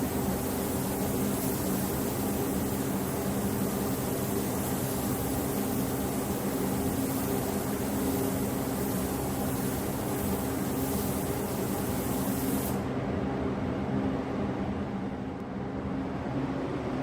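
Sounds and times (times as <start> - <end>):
mechanical drone with hiss and hum: 0.0 - 12.9.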